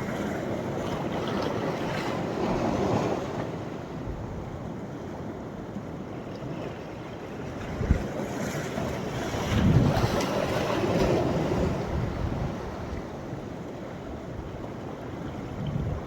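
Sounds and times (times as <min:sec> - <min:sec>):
sea waves breaking on beach: 0:00.0 - 0:16.0
wind buffeting microphone: 0:07.6 - 0:13.4, 0:15.2 - 0:16.0.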